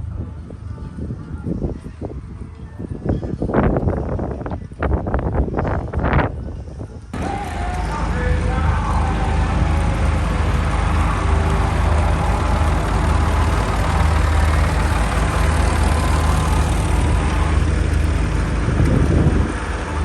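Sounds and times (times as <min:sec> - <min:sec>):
heavy engine running: 0:07.2 - 0:20.0.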